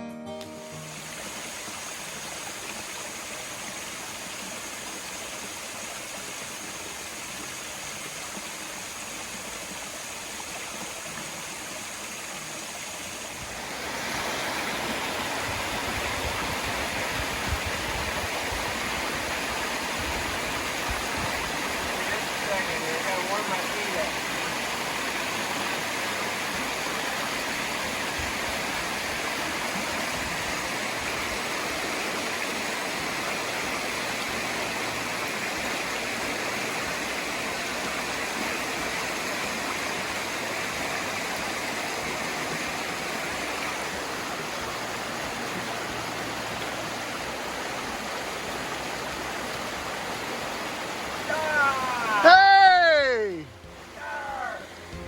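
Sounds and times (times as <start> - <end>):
stream water rushing: 0.2 - 55.0.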